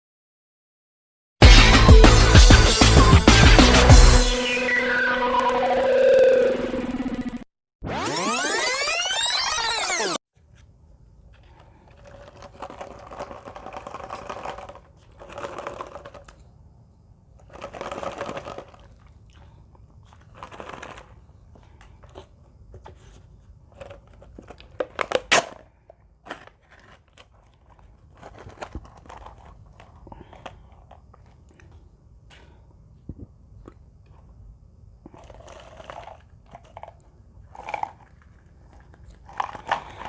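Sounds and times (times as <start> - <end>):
plastic wrapper crinkling and tearing: 12.0 - 16.4, 20.1 - 21.2, 26.2 - 29.9.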